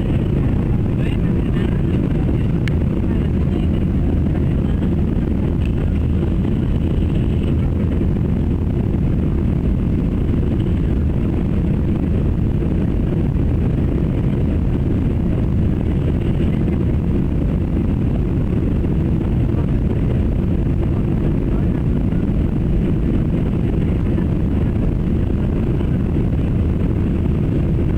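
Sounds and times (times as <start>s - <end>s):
airplane cabin drone: 0.0s - 27.9s.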